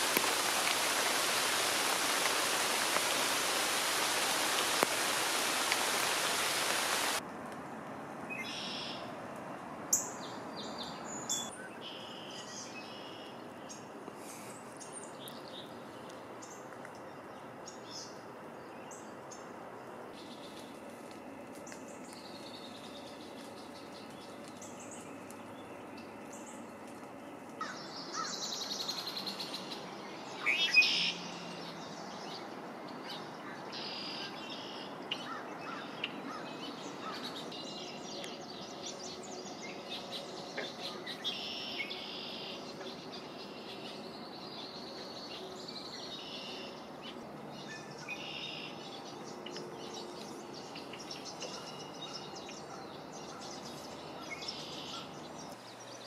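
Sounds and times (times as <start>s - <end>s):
background hiss: 0.0s - 7.2s, 8.0s - 56.0s
birds singing and calling: 21.6s - 56.0s.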